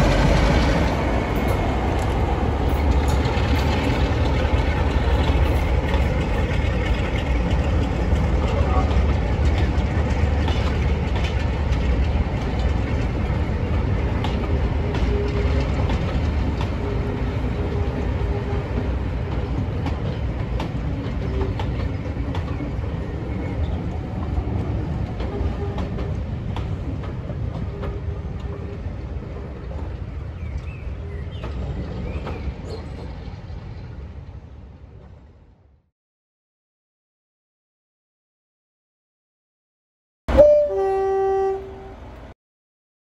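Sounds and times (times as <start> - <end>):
diesel train rumbling: 0.0 - 35.5, 40.3 - 42.4
wheels clicking over rail joints: 0.1 - 30.7.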